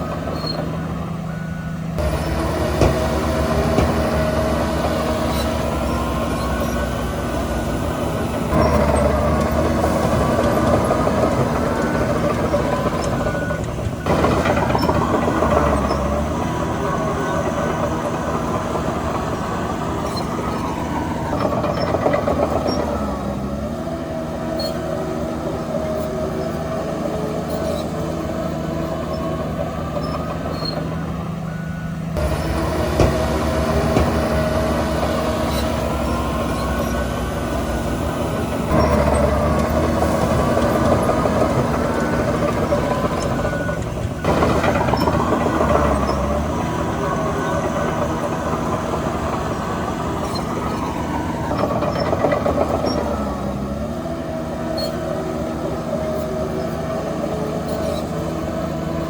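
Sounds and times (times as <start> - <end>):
heavy diesel machinery revving: 0.0 - 59.0.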